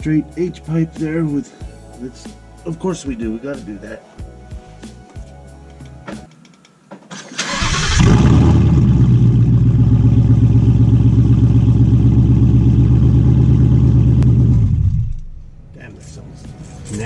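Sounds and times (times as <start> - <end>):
car engine starting and idling: 7.1 - 15.7
deep exhaust rumble: 7.9 - 15.8.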